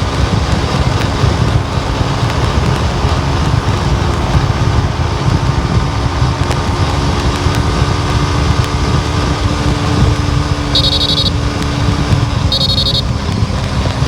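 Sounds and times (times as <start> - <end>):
car road and engine rumble: 0.0 - 14.0
high electronic beep: 10.7 - 11.4, 12.5 - 13.0.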